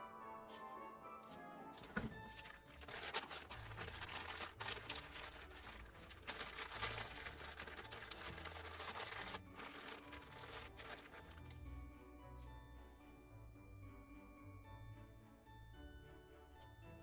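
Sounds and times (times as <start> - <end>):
faint background music: 0.0 - 17.0
crinkling and rustling handling: 0.3 - 13.0.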